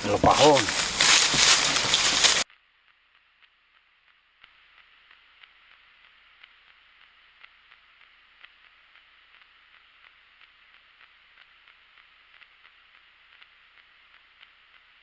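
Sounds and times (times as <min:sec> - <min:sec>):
walking through dry grass: 0:00.0 - 0:02.4.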